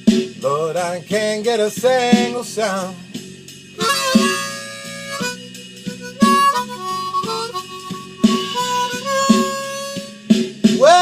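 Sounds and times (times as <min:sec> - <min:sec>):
drum and bass backing track: 0:00.0 - 0:11.0
blues harmonica: 0:03.7 - 0:11.0.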